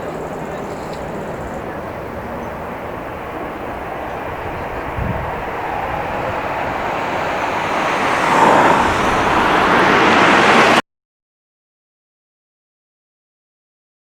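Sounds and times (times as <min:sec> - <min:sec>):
jet engine rushing: 0:00.0 - 0:10.8.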